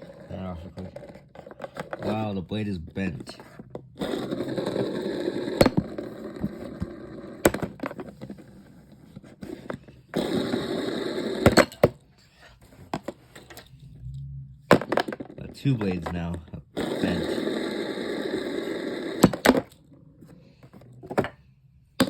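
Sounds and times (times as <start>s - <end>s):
low motor hum: 13.7s - 14.7s.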